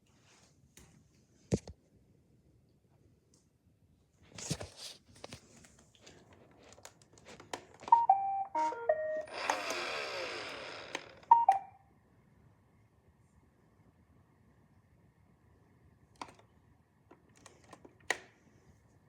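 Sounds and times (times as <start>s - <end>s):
robot vacuum clicking: 7.4s - 11.7s
electronic beep tones: 7.9s - 9.5s, 11.3s - 11.8s
motor whir winding down: 9.2s - 11.6s.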